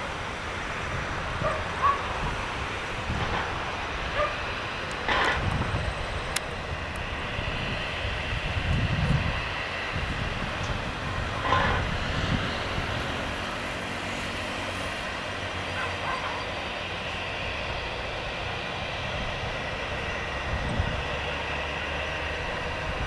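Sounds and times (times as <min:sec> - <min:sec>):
jet engines rumbling with whine: 0:00.0 - 0:23.0.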